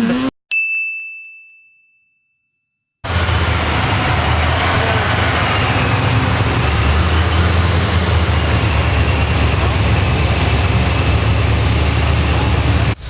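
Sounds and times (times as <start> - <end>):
car engine and exhaust running: 3.1 - 13.0.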